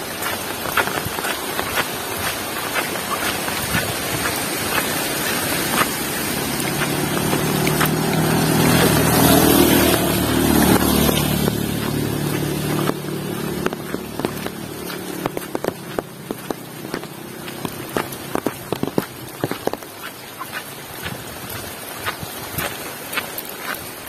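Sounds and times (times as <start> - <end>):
rain hissing: 0.0 - 24.0
sharp water drips: 0.0 - 24.0
vehicle engine passing by: 2.7 - 19.6.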